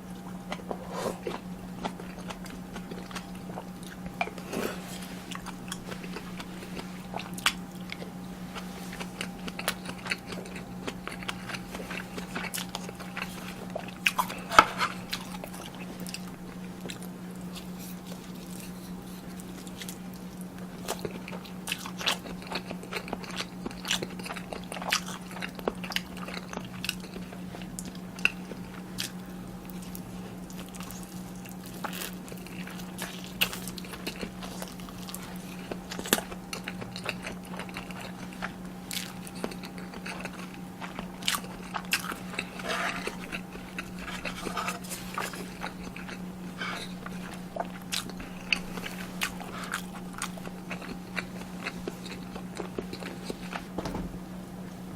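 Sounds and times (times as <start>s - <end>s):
crunchy bites and chewing: 0.0s - 53.8s
steady low hum: 0.0s - 54.9s.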